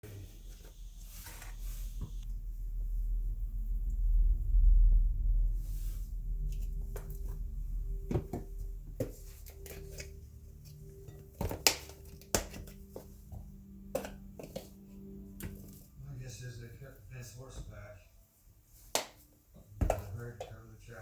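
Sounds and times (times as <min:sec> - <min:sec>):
faint low hum: 0:00.0 - 0:21.0
dishes and utensils clinking: 0:08.1 - 0:15.9.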